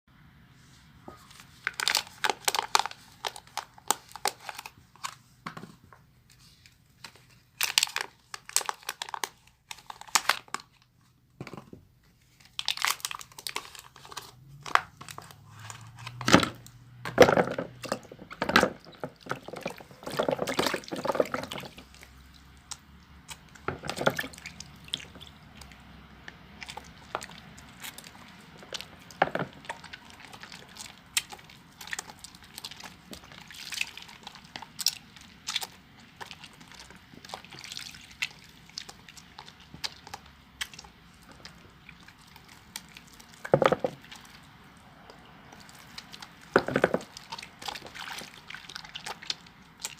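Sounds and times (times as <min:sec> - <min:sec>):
soap lathering squishing: 0:17.7 - 0:49.9.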